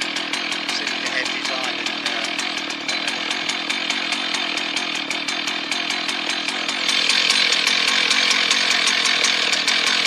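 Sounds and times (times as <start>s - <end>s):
two-stroke chainsaw running: 0.0s - 10.0s.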